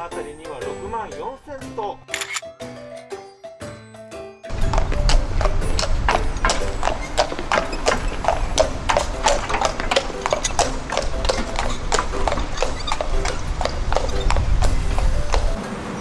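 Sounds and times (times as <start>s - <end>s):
horse hooves clip-clopping: 4.5s - 16.0s.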